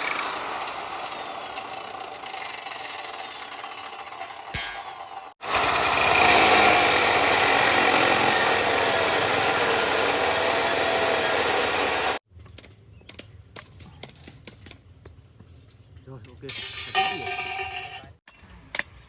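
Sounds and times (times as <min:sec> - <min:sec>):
power saw cutting wood: 0:00.0 - 0:12.2.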